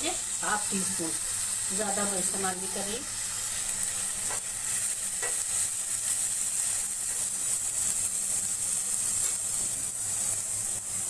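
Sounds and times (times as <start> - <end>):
spices sizzling in hot oil: 0.0 - 11.0
spatula stirring in pan: 2.7 - 10.4.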